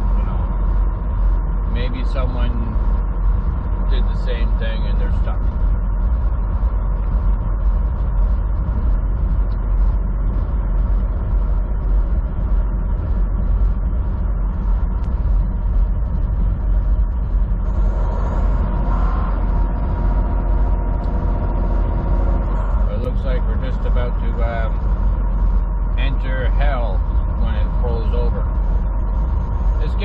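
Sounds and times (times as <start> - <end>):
road noise: 0.0 - 30.0
truck engine drone: 0.0 - 30.0.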